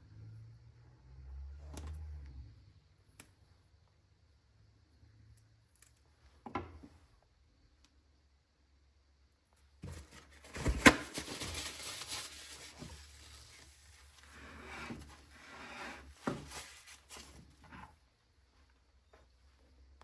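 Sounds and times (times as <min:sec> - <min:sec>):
scraping and rustling: 0:09.8 - 0:18.1.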